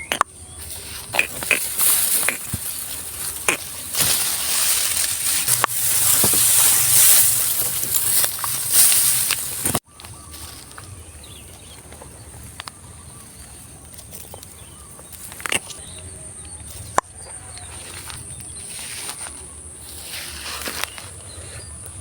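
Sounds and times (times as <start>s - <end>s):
distant bird calls: 0.0s - 22.0s.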